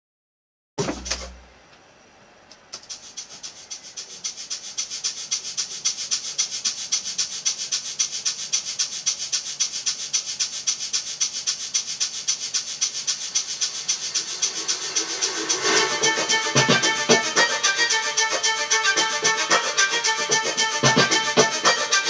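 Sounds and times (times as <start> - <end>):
short hissy strokes: 2.8 - 22.0
sharp hit: 13.7 - 21.9.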